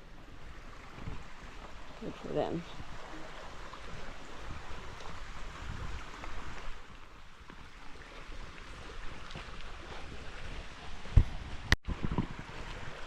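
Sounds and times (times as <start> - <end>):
water running over rocks: 0.0 - 13.0.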